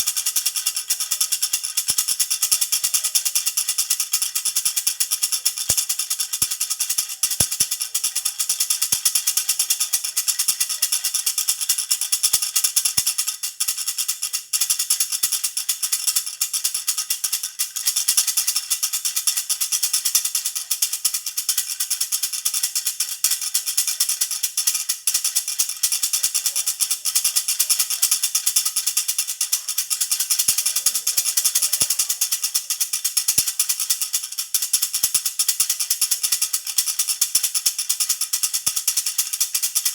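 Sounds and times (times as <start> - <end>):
baby rattle jingling: 0.0 - 12.9, 24.4 - 39.9.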